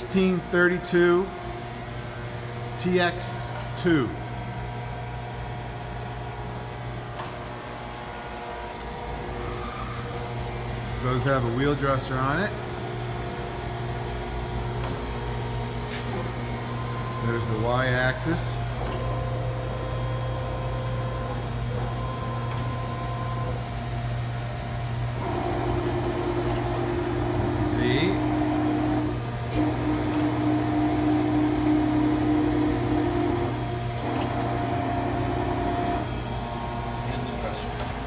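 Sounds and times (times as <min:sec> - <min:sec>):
drive whine: 0:00.0 - 0:38.0
surface grinder motor hum: 0:25.2 - 0:37.7.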